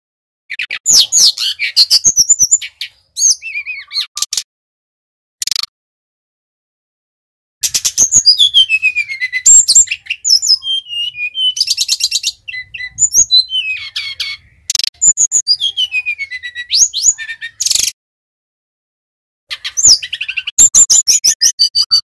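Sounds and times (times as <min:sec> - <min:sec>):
flycatcher singing: 0:07.6 - 0:17.9.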